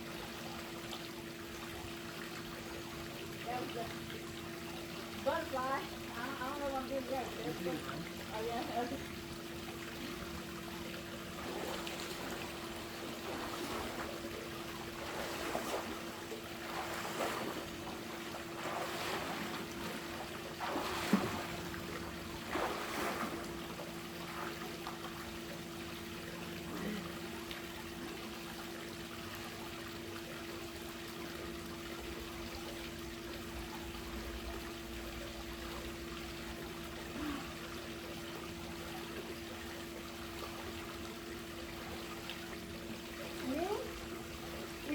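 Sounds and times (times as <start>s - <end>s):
water trickling and lapping: 0.0s - 44.9s
swimmer splashing in pool: 11.2s - 25.5s.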